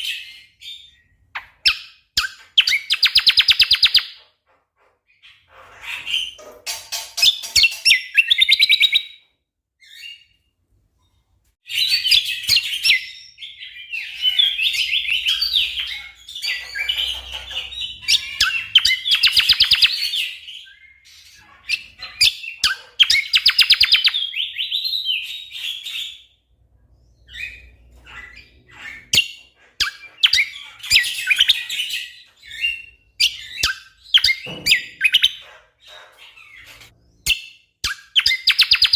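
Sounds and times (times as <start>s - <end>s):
bird chattering song: 0.0s - 4.3s, 11.8s - 26.3s, 27.0s - 38.9s.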